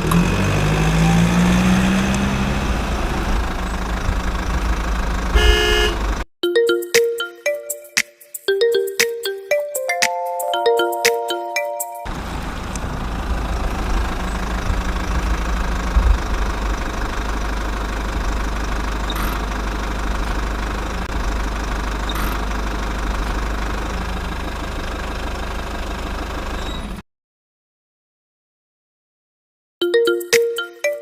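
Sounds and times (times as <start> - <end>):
diesel engine running: 0.0 - 6.3, 12.1 - 27.0.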